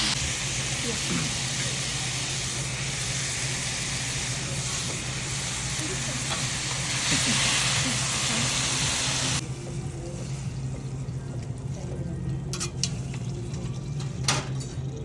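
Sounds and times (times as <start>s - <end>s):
food sizzling on a griddle: 0.0s - 10.6s.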